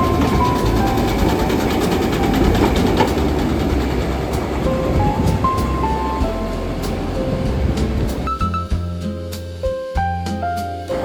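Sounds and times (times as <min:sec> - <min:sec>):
train running on rails: 0:00.0 - 0:08.3
music notes: 0:00.0 - 0:11.0.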